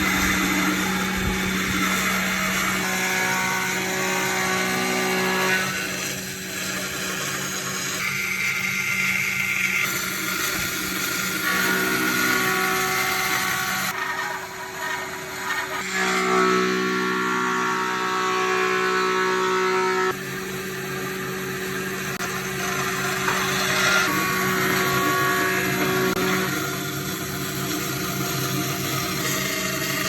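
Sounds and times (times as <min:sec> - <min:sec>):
power tool motor whining: 0:00.0 - 0:14.0.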